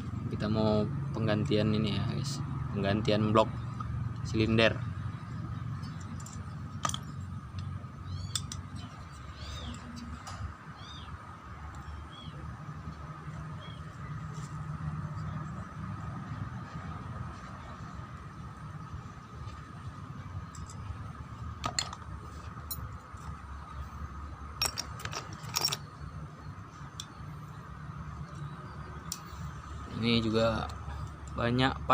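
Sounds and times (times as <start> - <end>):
metal parts clinking: 5.7 - 10.6, 20.4 - 23.4, 24.6 - 26.1.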